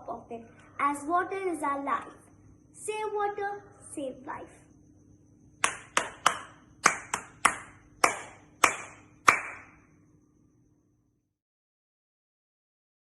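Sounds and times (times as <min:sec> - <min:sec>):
hand clapping: 0:05.6 - 0:09.8.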